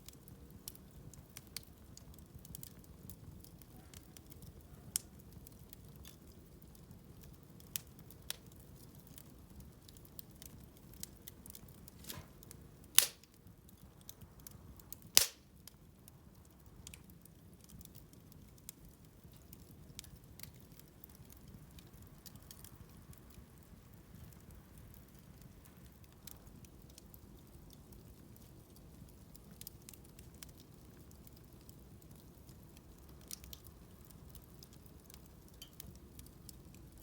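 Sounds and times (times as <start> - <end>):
bonfire crackling: 0.0 - 37.0
low steady hiss: 0.0 - 37.0
loud pops: 13.0 - 13.3, 15.2 - 15.4.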